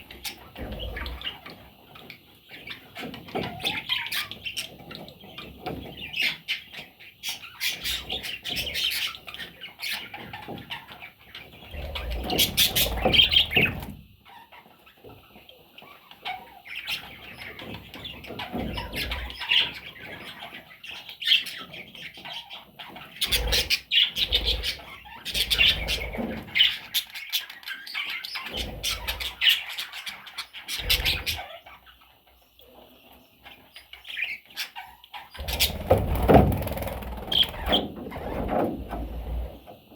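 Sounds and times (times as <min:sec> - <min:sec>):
budgerigars chirping and chattering: 0:00.0 - 0:39.7
wings flapping: 0:35.4 - 0:39.5.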